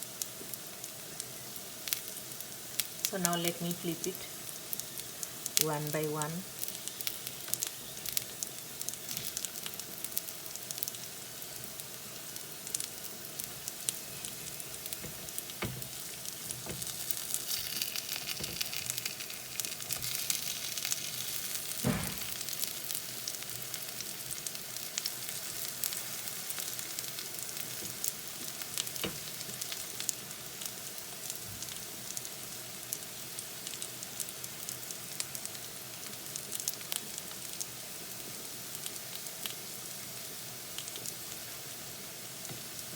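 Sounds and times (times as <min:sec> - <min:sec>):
slices sizzling in oil: 0:00.0 - 0:42.9
knocks against pan: 0:21.8 - 0:22.4.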